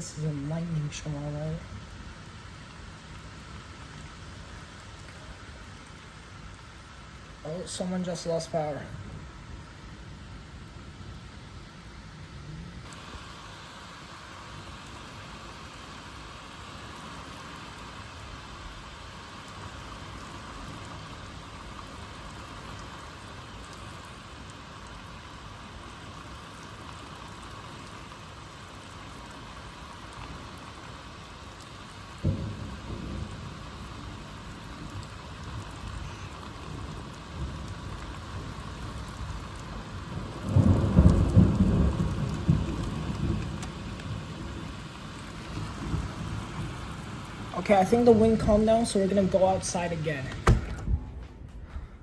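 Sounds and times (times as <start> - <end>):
steady rain: 0.0 - 52.0
rumble of thunder: 32.1 - 49.0
thunder clap: 32.2 - 51.6.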